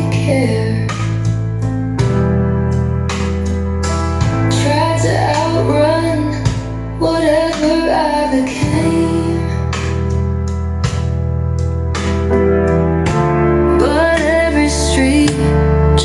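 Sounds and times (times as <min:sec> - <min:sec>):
woman singing: 0:00.0 - 0:01.2, 0:04.4 - 0:09.9, 0:13.7 - 0:16.0
guitar: 0:00.0 - 0:16.0
low bass notes: 0:00.0 - 0:16.0.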